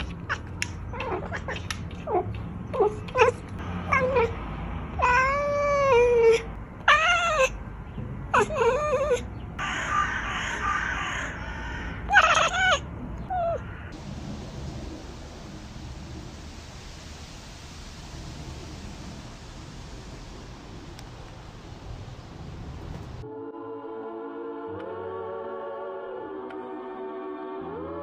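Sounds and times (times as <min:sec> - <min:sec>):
cat meowing: 0:05.0 - 0:07.6.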